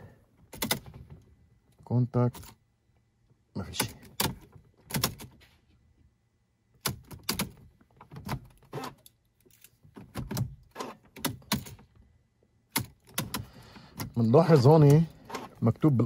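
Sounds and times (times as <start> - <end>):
car key and control clicks: 6.8 - 9.2, 9.9 - 11.9, 12.7 - 15.6.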